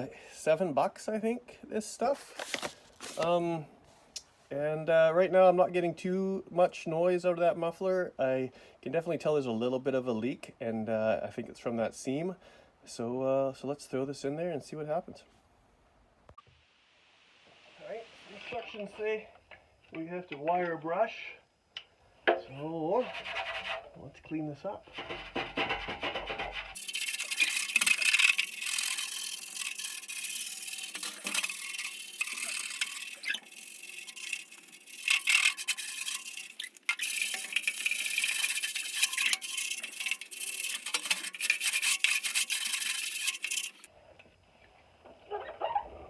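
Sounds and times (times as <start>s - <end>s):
wire brush scrubbing metal: 24.9s - 43.9s.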